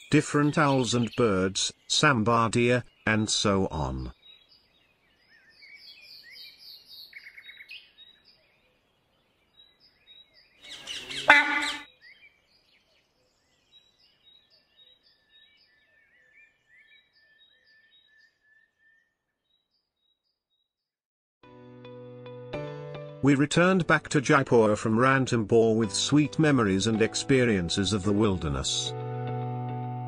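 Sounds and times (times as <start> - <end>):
birds chirping: 0.0 - 20.4
harsh bird call: 10.6 - 12.0.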